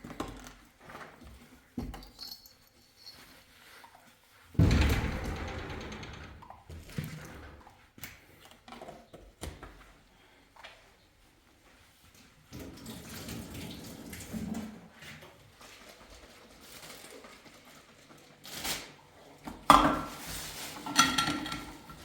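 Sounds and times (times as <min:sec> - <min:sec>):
sharp clanks: 0:04.6 - 0:06.6
dishes and cutlery clattering: 0:19.7 - 0:22.0.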